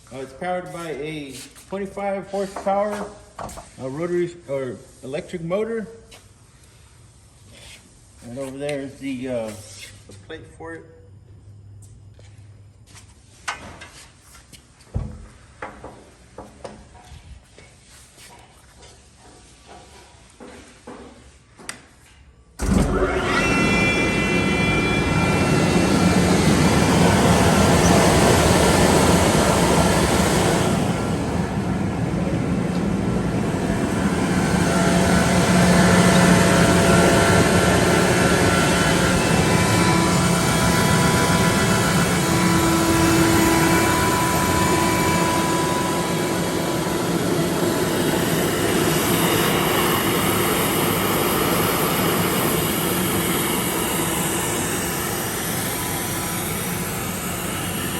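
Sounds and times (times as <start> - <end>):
air compressor running: 22.6 - 57.9
low electric motor hum: 22.6 - 57.9.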